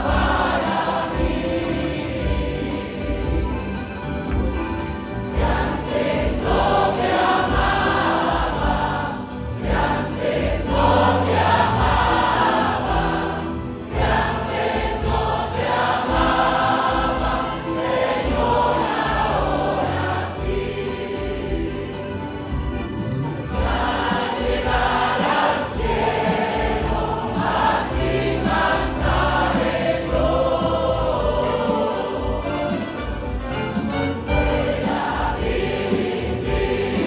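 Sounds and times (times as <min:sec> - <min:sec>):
church choir singing a hymn: 0:00.0 - 0:37.0.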